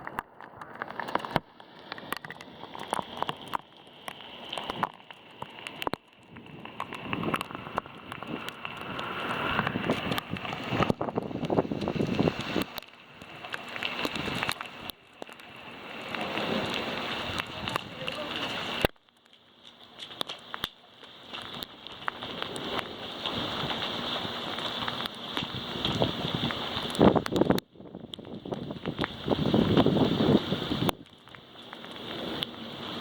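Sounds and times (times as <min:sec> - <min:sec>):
rain: 0:00.0 - 0:33.0
raindrops ticking: 0:00.0 - 0:33.0
gusting wind buffeting microphone: 0:06.3 - 0:14.9, 0:16.0 - 0:18.9, 0:21.4 - 0:31.4.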